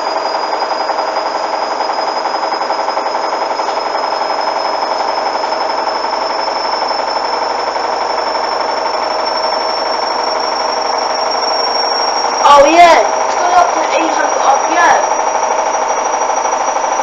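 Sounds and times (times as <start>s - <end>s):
washing machine spinning up: 0.0s - 17.0s.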